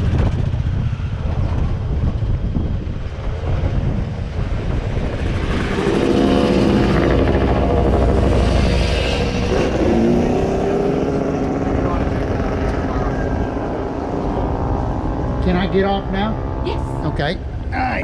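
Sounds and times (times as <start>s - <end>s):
tram rumbling: 0.0s - 18.0s
engine note: 5.6s - 17.7s.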